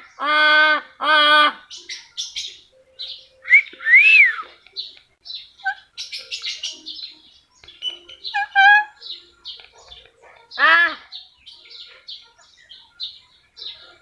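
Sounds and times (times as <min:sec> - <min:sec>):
pet bird calling: 0:00.0 - 0:14.0
bird chirps and clicks: 0:01.7 - 0:14.0
bird whistle: 0:03.0 - 0:04.5.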